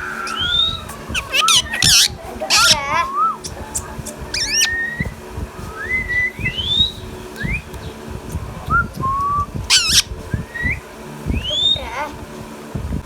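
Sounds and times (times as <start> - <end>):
parakeet shrill screeches: 0.0 - 4.8, 9.7 - 10.1
parakeet whistling: 0.0 - 8.0, 8.7 - 11.9.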